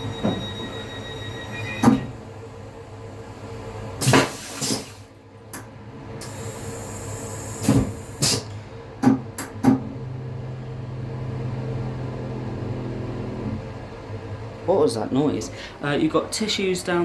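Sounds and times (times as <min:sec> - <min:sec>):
sharp knocks and clunks: 0:09.0 - 0:09.9.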